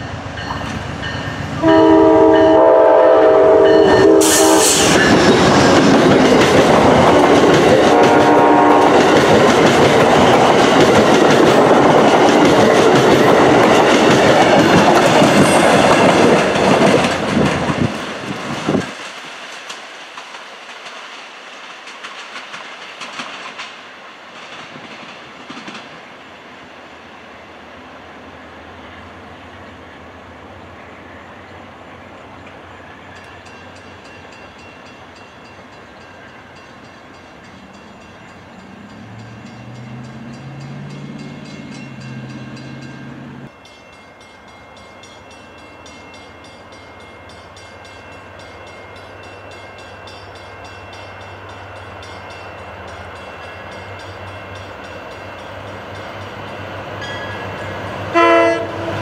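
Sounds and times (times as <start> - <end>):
crossing bell ringing: 0.0 - 16.9, 32.8 - 59.0
commuter train running: 0.0 - 59.0
train horn blast: 1.6 - 5.1, 7.2 - 9.2, 58.1 - 59.0.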